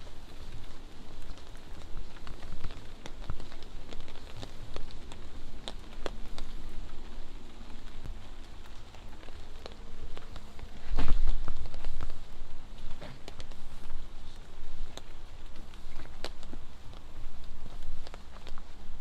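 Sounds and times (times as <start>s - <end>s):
light rain pattering: 0.0s - 19.0s
louder raindrops striking: 0.0s - 19.0s
steady low rumble: 0.0s - 19.0s.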